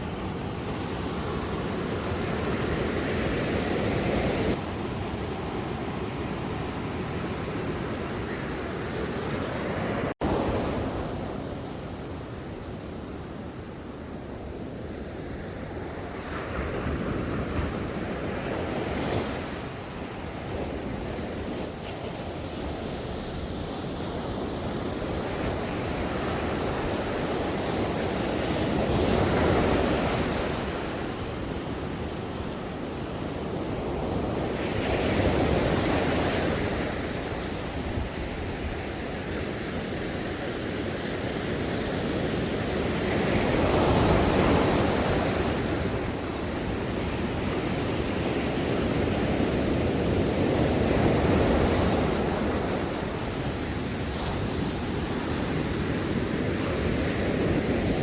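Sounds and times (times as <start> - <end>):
ocean waves washing on shore: 0.0 - 58.0.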